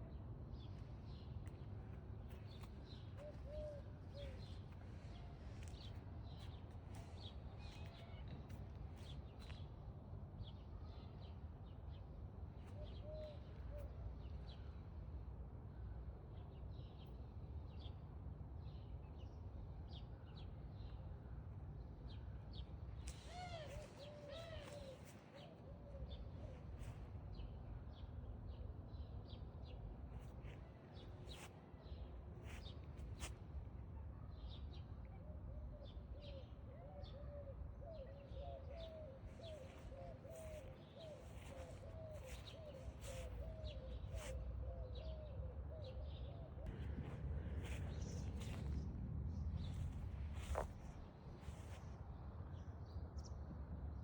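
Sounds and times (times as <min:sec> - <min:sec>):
birds chirping: 0:38.0 - 0:44.3
steady low rumble: 0:46.6 - 0:52.3.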